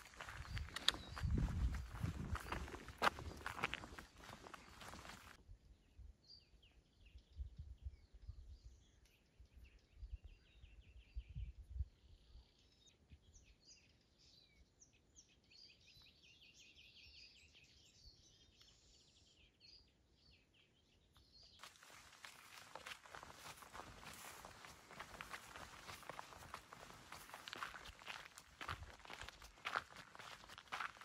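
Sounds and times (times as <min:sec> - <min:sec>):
songbirds chirping and trilling: 0:00.0 - 0:31.0
dull low thumps: 0:00.2 - 0:04.0.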